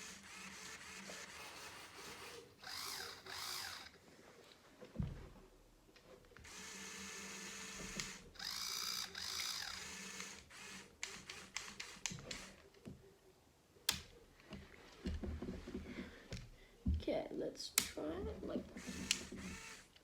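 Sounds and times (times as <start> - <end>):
toy truck motors whirring: 0.0 - 4.0, 6.4 - 12.6, 18.7 - 20.0
sharp plastic clicks: 13.9 - 14.1.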